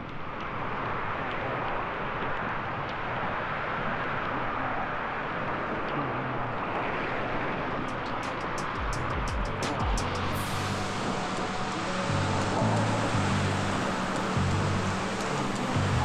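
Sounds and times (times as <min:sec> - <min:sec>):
wind over microphone: 0:00.0 - 0:16.0
hiss of wet road: 0:10.0 - 0:16.0.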